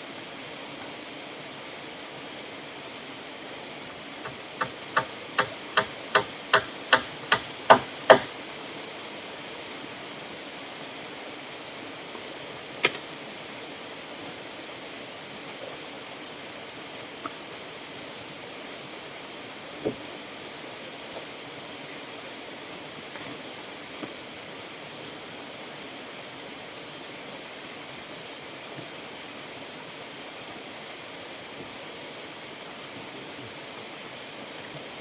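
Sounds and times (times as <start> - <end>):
steady hiss: 0.0 - 35.0
hammer driving nail into wood: 4.2 - 8.4.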